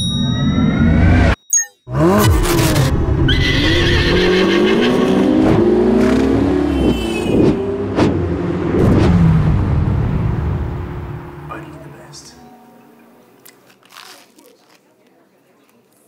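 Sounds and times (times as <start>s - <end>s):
sports car engine revving: 1.9s - 11.9s.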